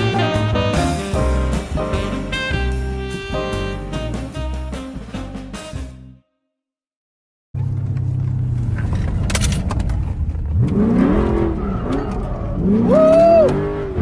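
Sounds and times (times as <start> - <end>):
car engine revving: 7.6 - 14.0.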